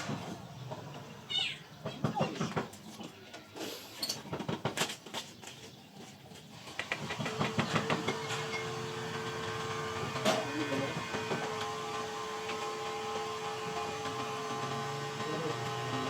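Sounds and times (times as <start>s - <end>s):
knocks and clicks of work: 6.7s - 8.8s, 10.0s - 11.8s
small motor humming: 6.7s - 16.0s.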